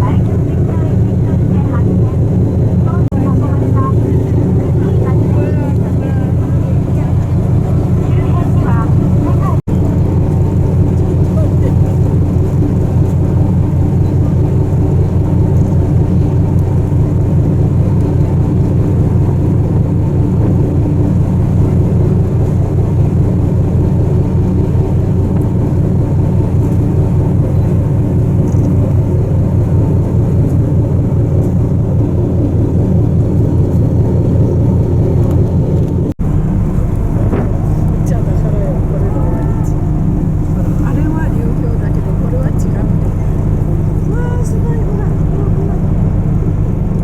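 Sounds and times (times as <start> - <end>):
diesel engines droning: 0.0 - 47.0.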